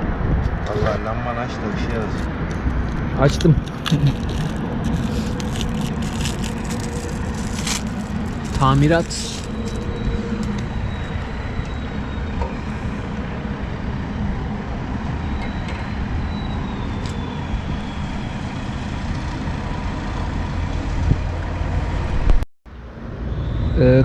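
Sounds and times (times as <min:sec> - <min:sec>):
lorry engine and road noise: 0:00.0 - 0:24.0.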